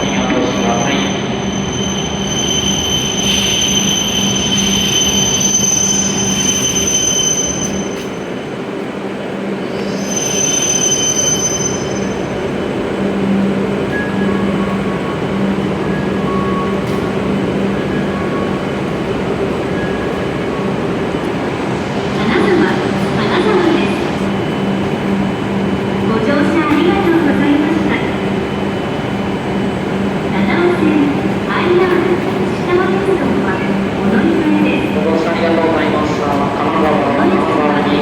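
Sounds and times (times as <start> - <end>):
train high-pitched squeal: 0.0 - 8.5, 9.6 - 12.4
train low hum: 0.0 - 38.0.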